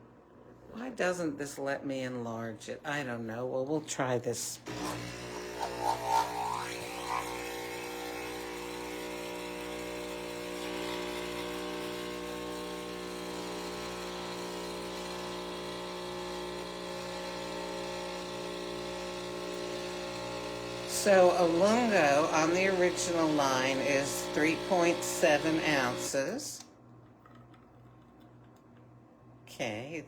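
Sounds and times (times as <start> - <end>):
espresso machine pump humming: 4.6 - 26.6.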